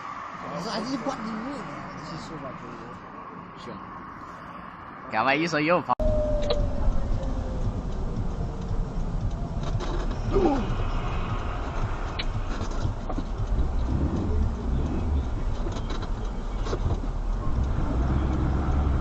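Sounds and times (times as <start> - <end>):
car interior road rumble: 6.0 - 19.0
faint ticks: 7.2 - 19.0.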